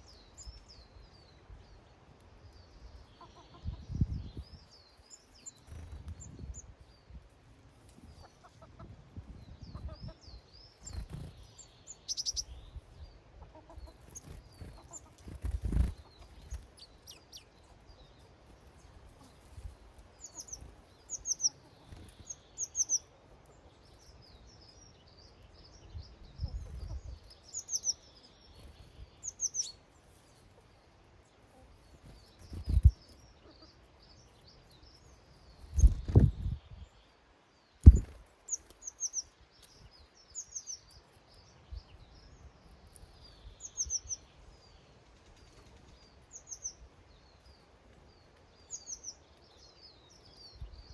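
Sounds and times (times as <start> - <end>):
songbirds chirping and trilling: 0.0 - 50.9
hens clucking: 13.4 - 14.1
low thuds: 37.8 - 38.1.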